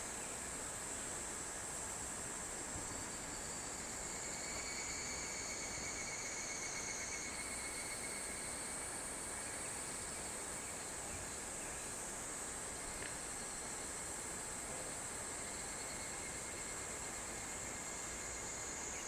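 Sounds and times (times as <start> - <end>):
insects trilling: 15.3 - 19.0.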